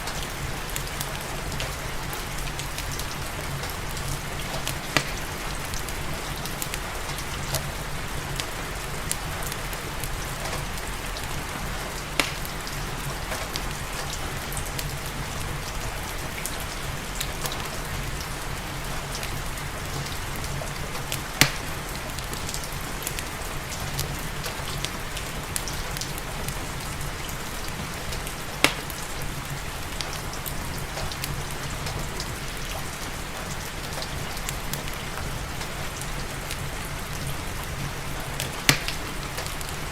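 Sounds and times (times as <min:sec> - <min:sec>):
steady rain: 0:00.0 - 0:39.9
wood fire crackling: 0:00.0 - 0:39.9
sharp fire pops: 0:04.6 - 0:05.4, 0:12.1 - 0:12.7, 0:21.4 - 0:21.9, 0:28.6 - 0:29.0, 0:38.4 - 0:39.5.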